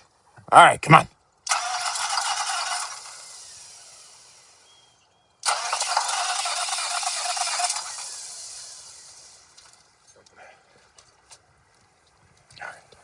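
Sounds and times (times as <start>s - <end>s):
diesel engine starter cranking: 1.4s - 4.7s, 5.4s - 10.0s.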